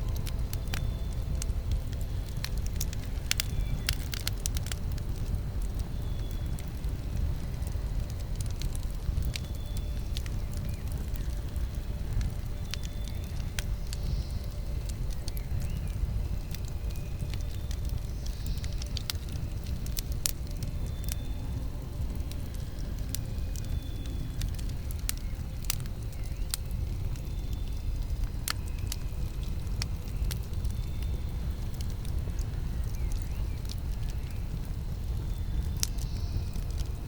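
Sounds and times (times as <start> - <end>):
steady low rumble: 0.0 - 37.0
wood crackling in campfire: 0.0 - 37.0.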